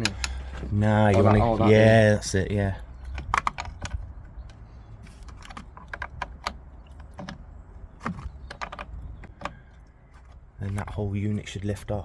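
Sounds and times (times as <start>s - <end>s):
light clicks and knocks of tools: 0.0s - 1.4s.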